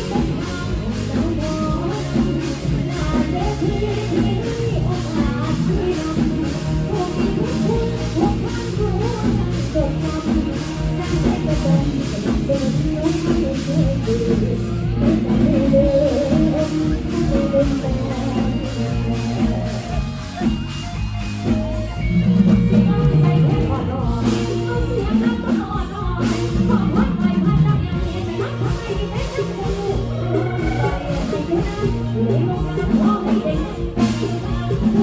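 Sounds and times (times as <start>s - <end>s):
person singing: 0.0s - 21.0s, 21.7s - 35.0s
live band music: 0.0s - 35.0s
steady drum beat: 0.0s - 35.0s.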